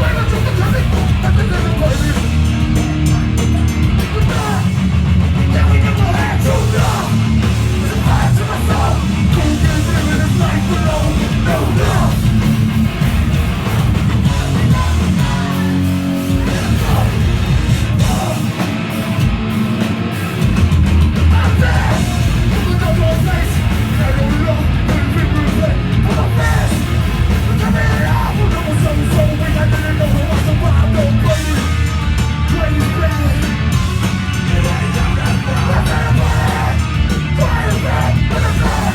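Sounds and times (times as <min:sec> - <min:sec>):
bass guitar: 0:00.0 - 0:38.9
distorted electric guitars: 0:00.0 - 0:38.9
drums: 0:00.0 - 0:38.9
shouted vocals: 0:04.1 - 0:12.5, 0:14.3 - 0:18.8, 0:21.2 - 0:31.8, 0:34.2 - 0:38.9.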